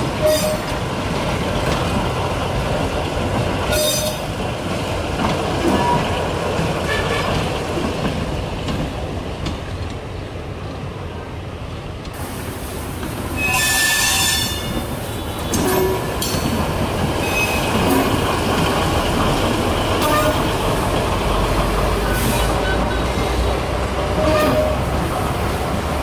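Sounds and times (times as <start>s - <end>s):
train rolling on rails: 0.0s - 26.0s
train wheels squealing: 13.4s - 16.4s, 17.2s - 18.2s.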